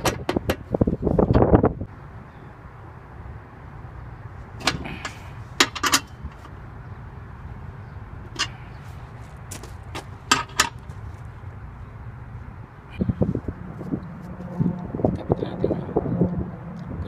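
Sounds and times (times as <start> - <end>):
sharp clicks and knocks: 0.0 - 0.7, 9.9 - 10.9
steady low rumble: 0.6 - 17.0.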